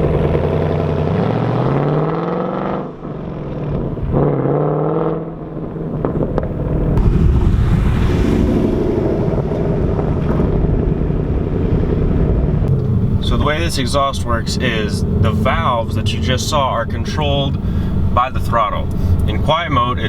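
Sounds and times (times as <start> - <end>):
car engine accelerating hard: 0.0 - 20.0
rushing noise: 7.0 - 18.4.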